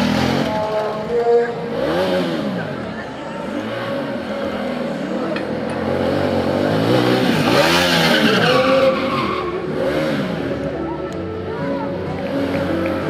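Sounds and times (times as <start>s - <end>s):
motorcycle engine revving: 0.0s - 10.8s
tyre squealing: 6.9s - 9.8s.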